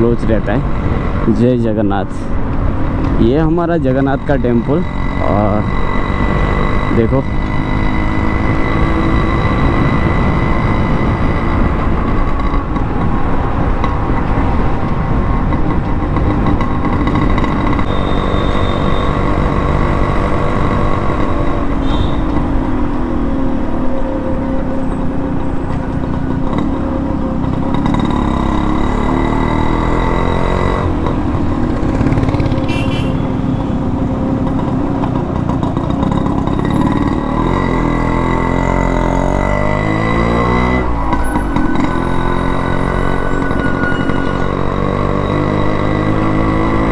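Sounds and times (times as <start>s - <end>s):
two-stroke motorcycle engine revving: 0.0s - 46.9s.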